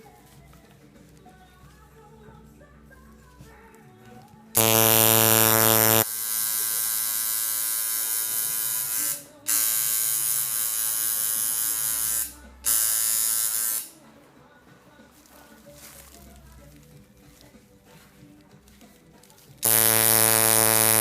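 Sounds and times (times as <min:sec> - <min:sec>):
tattoo machine buzzing: 0:04.6 - 0:13.9, 0:19.6 - 0:21.0.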